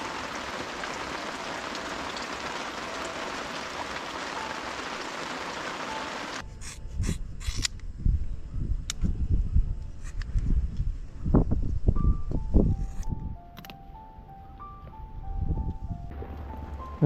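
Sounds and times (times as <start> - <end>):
heavy rain: 0.0 - 6.4.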